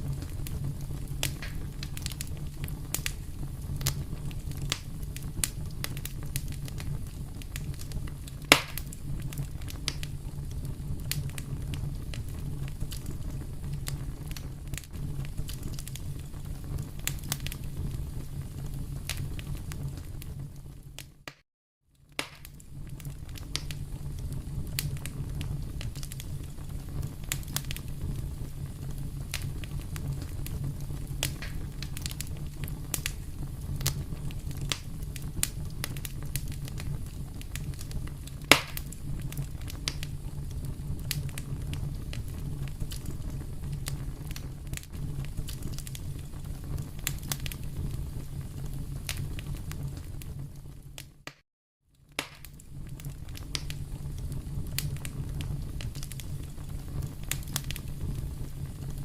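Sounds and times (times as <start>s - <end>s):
fire crackling: 0.0s - 59.0s
sharp loud pop: 8.5s - 8.8s, 22.2s - 22.5s, 38.5s - 38.8s, 52.2s - 52.5s.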